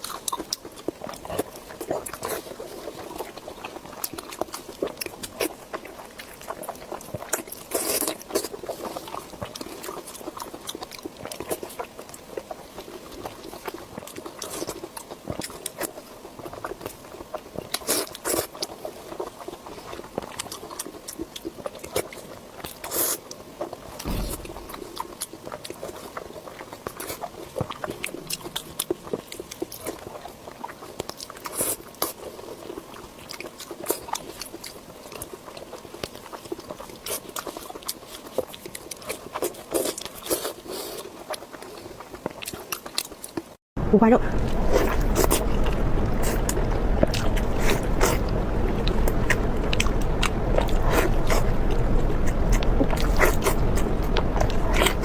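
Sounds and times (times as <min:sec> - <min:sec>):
crunching crisp food: 0:00.0 - 0:43.6, 0:44.4 - 0:55.0
low thump: 0:24.0 - 0:25.2.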